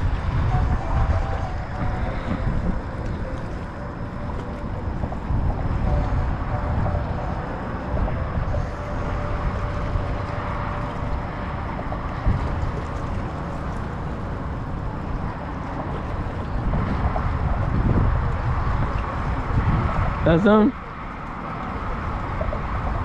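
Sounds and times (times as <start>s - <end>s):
faint steady hum: 0.0s - 20.1s
wind buffeting microphone: 0.0s - 23.0s.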